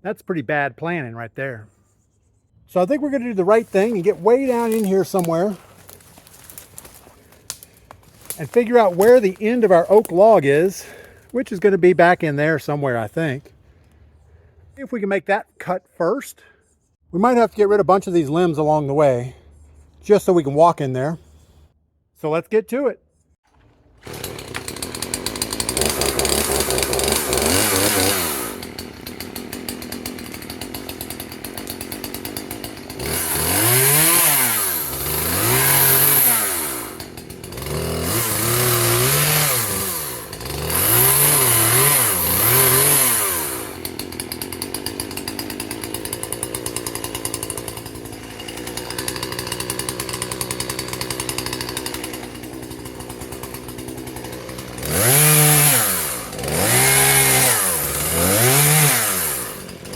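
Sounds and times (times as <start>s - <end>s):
chainsaw revving and idling: 2.7s - 13.6s, 23.9s - 59.9s.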